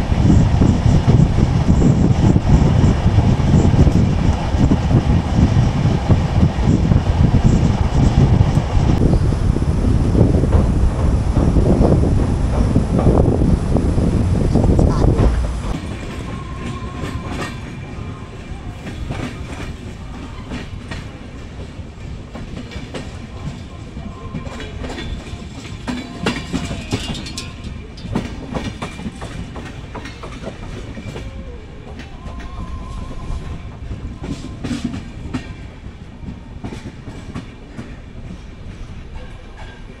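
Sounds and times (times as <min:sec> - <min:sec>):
train rumbling: 0:00.0 - 0:40.0
wheels clacking over rail joints: 0:18.7 - 0:32.6.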